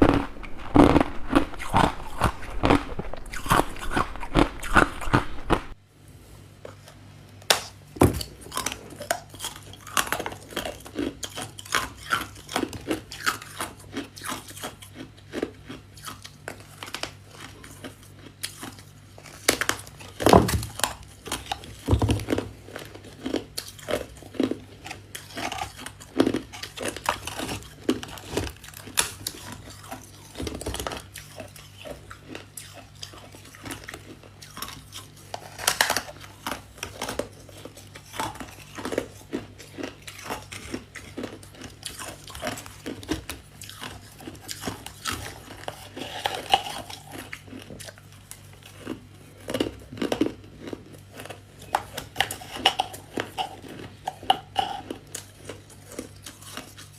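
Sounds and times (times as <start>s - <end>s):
frost crunching while chewed: 0.0s - 5.8s, 6.7s - 56.9s
steady low hum: 0.0s - 10.8s.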